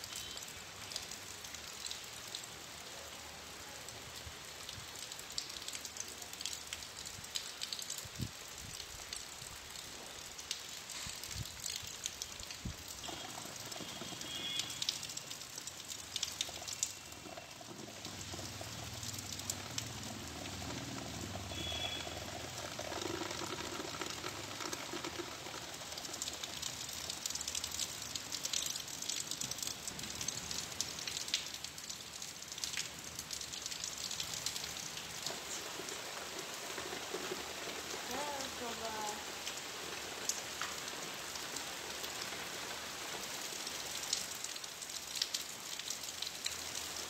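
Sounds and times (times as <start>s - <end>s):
rain on wet ground: 0.0s - 47.0s.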